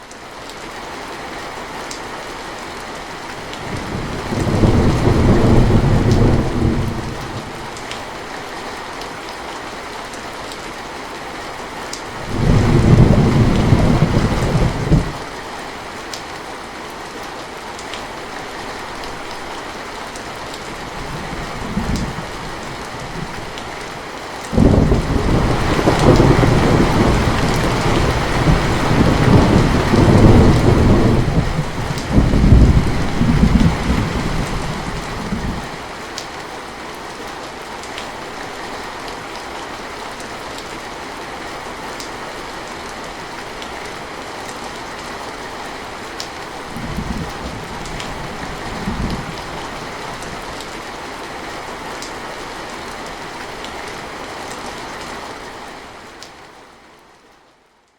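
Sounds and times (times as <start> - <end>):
heavy rain on a roof: 0.0 - 57.9
thunder rolling: 3.7 - 7.4, 24.6 - 35.7.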